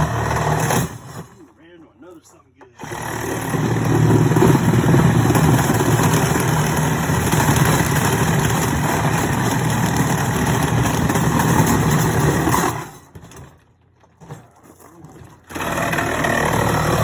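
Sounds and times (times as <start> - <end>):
power saw cutting metal: 0.0 - 1.4, 2.8 - 13.1, 15.4 - 17.0.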